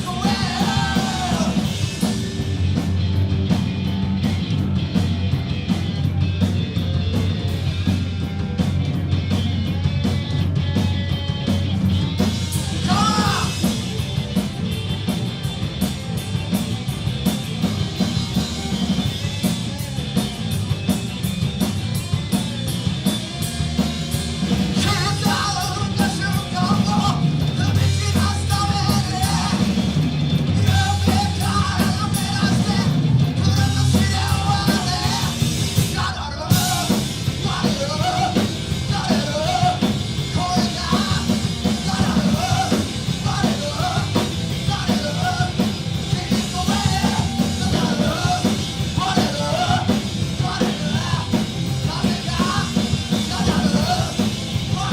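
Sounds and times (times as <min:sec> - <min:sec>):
live rock band playing: 0:00.0 - 0:54.9
person singing: 0:30.6 - 0:54.9.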